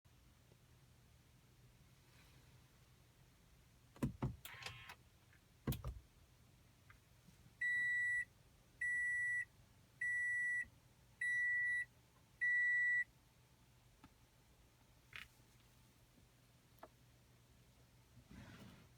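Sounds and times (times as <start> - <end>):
car warning buzzer beeps: 7.6 - 13.1.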